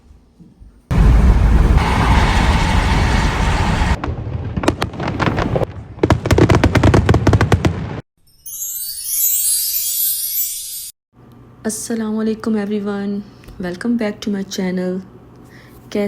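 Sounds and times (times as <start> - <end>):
firework crackling pops: 3.5 - 8.0.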